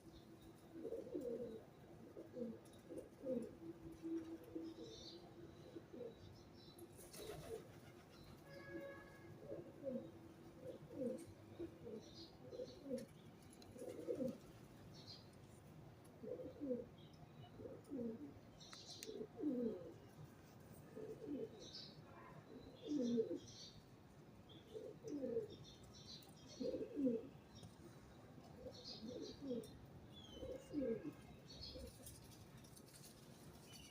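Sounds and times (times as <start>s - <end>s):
pigeons cooing: 0.7s - 6.3s, 7.1s - 8.1s, 9.4s - 13.1s, 13.7s - 14.6s, 16.2s - 16.9s, 17.6s - 18.4s, 19.0s - 20.1s, 20.9s - 21.8s, 22.6s - 23.4s, 24.7s - 25.6s, 26.5s - 27.4s, 28.6s - 32.3s
small birds chirping: 9.9s - 20.4s, 21.0s - 33.9s.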